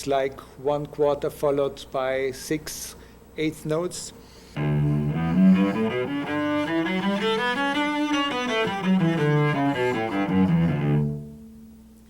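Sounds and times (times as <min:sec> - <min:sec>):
cello playing a scale: 0:04.6 - 0:11.4.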